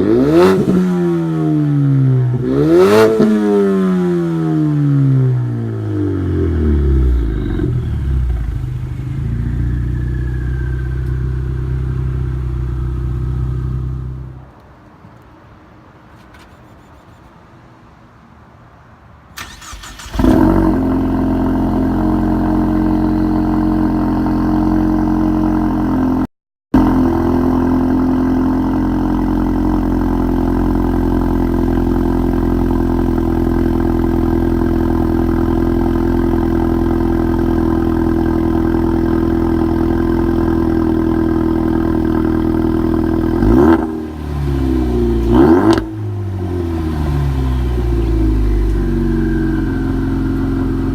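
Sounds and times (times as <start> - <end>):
engine revving: 0.0 - 1.4, 2.3 - 5.2, 19.4 - 25.6, 39.3 - 50.9
car engine starting and idling: 2.2 - 14.6, 19.4 - 26.2, 26.8 - 50.9.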